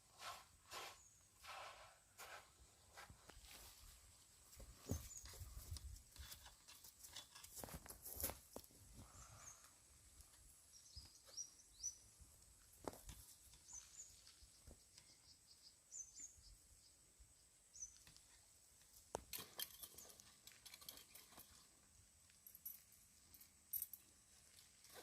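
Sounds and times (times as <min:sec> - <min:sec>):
small bird chirping: 0:09.0 - 0:12.4, 0:13.1 - 0:18.5.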